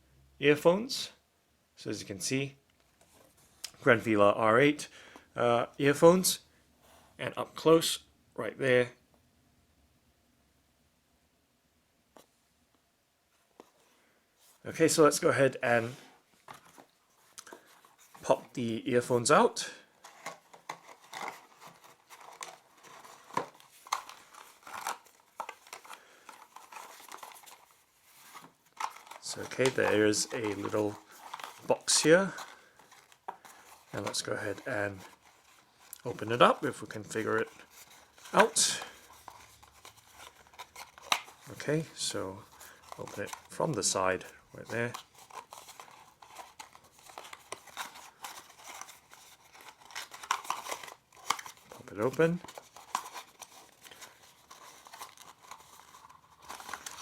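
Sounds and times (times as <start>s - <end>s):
packaging rustling and crinkling: 16.3s - 18.6s, 19.8s - 57.0s
cardboard box being opened: 52.4s - 57.0s.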